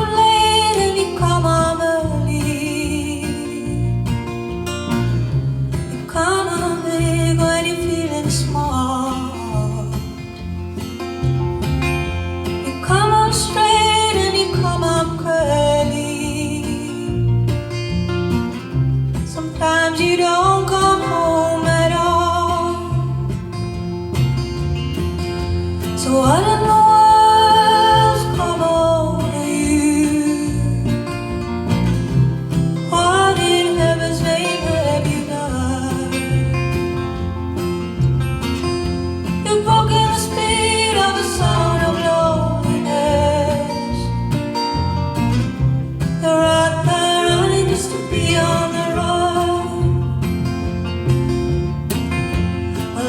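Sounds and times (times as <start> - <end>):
acoustic guitar strumming: 0.0 - 53.0
walking bass line: 0.0 - 53.0
person singing: 19.3 - 23.3, 26.0 - 31.2, 32.9 - 36.9, 39.4 - 44.2, 46.2 - 50.2.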